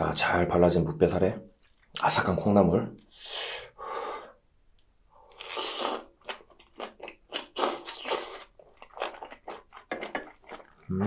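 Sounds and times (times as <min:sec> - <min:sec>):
slurping from a spoon: 0:05.3 - 0:06.1, 0:07.4 - 0:08.6
crisp crunching chewing: 0:05.4 - 0:11.0.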